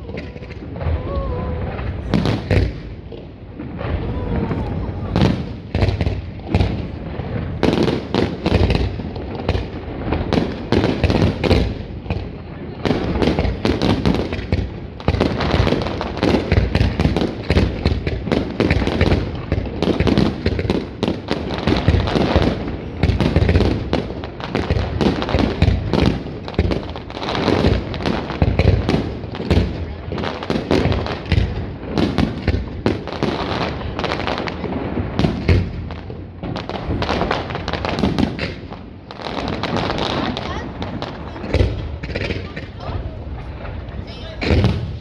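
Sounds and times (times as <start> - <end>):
crowd voices: 0.0 - 8.4, 39.4 - 45.0
fireworks bangs and crackling: 0.0 - 45.0.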